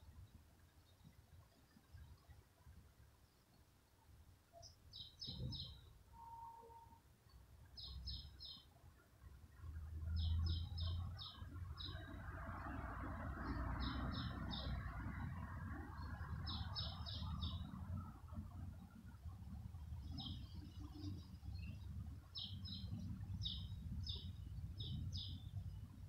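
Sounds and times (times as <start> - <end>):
low background rumble: 9.0 - 26.0.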